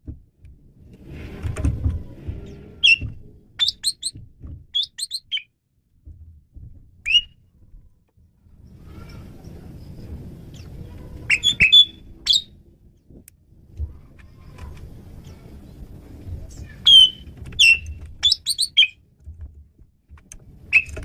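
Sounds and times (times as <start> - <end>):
low rumble: 0.0 - 3.6, 5.7 - 18.2
starling whistled calls: 11.3 - 12.5, 16.8 - 19.0, 20.7 - 21.0.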